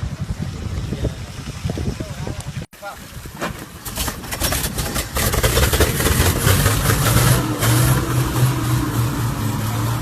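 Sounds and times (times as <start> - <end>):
vehicle engine humming: 3.6 - 10.0.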